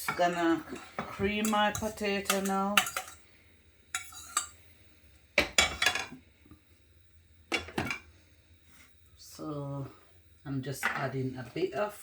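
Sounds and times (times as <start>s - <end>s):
metal utensils clattering on dishes: 0.1s - 3.2s.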